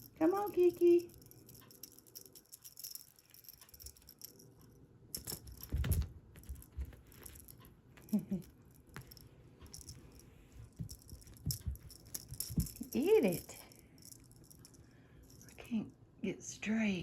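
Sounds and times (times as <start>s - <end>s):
light rattles and clicks: 0.0s - 15.6s.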